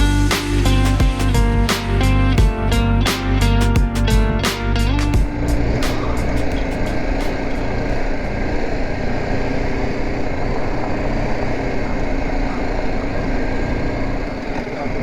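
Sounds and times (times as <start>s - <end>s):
road noise: 4.8s - 15.0s
motorcycle engine running: 5.0s - 15.0s.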